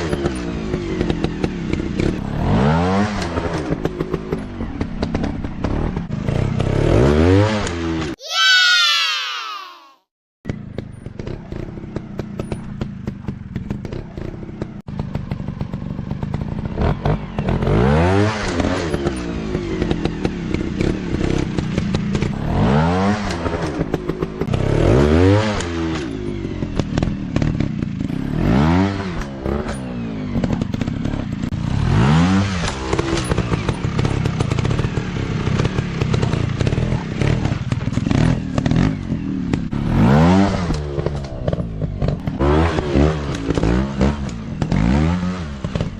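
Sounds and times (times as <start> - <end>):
dirt bike engines revving: 16.3 - 45.9.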